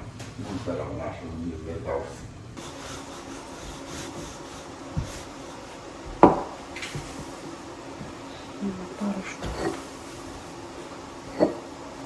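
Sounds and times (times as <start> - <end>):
hard objects knocking on wood: 6.0 - 8.2.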